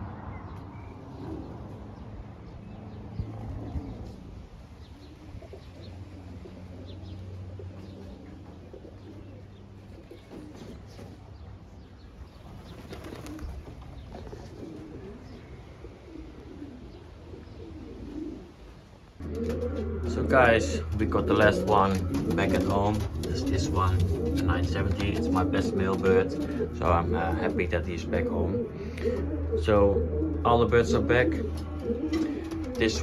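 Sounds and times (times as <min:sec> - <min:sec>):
pigeons cooing: 0:00.8 - 0:33.0
wings flapping: 0:12.4 - 0:15.2, 0:19.2 - 0:27.7, 0:31.3 - 0:33.0
steady low hum: 0:14.2 - 0:33.0.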